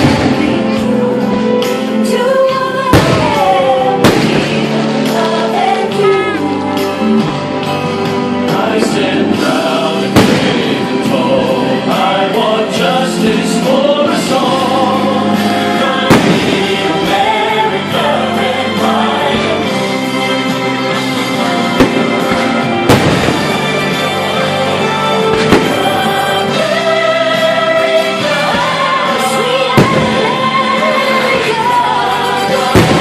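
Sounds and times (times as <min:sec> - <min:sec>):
music with choral singing: 0:00.0 - 0:33.0
loud firework bangs: 0:02.9 - 0:04.7, 0:10.2 - 0:11.0, 0:16.1 - 0:17.4, 0:21.7 - 0:24.0, 0:25.3 - 0:26.0, 0:32.7 - 0:33.0.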